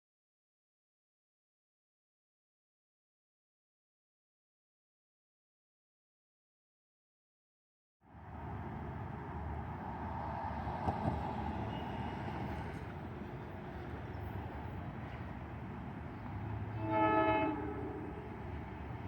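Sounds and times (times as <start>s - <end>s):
train rumbling: 8.2s - 19.0s
train horn blast: 16.6s - 18.5s.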